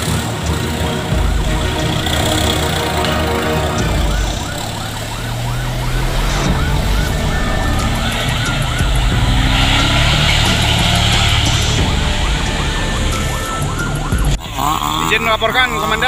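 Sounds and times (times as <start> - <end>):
fire truck siren yelping: 0.0 - 16.0
truck engine running: 0.0 - 16.0.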